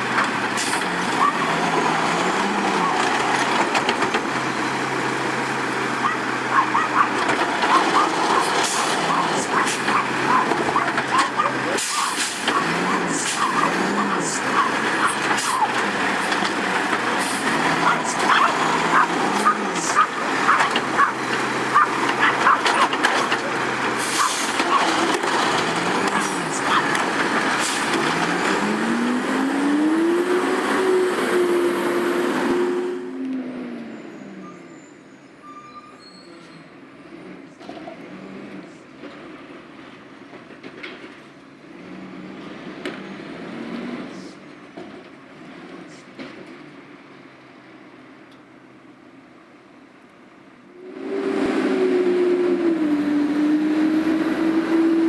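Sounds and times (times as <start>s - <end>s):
diesel truck engine revving: 0.0s - 34.6s, 41.6s - 44.4s, 50.7s - 55.0s.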